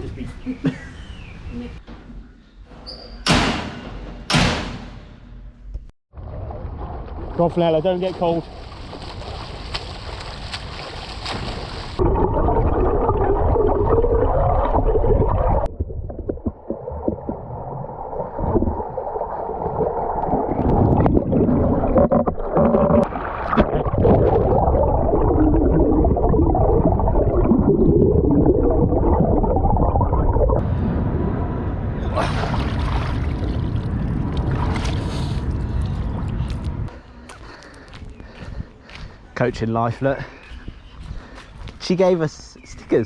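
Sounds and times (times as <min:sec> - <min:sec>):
muffled water sloshing and gurgling: 0:06.1 - 0:30.6, 0:32.1 - 0:36.6.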